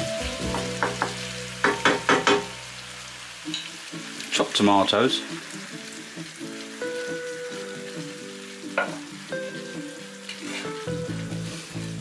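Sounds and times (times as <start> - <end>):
chicken and onions sizzling in pan: 0.0 - 12.0
utensil knocking pan: 0.4 - 2.6, 8.8 - 9.0.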